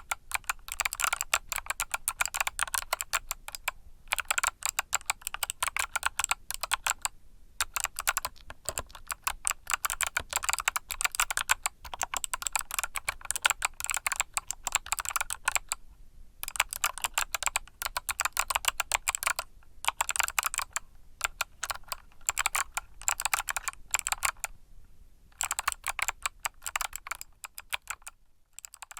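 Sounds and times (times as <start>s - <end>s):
mechanical keyboard typing: 0.0s - 15.8s, 16.4s - 24.5s, 25.4s - 28.9s.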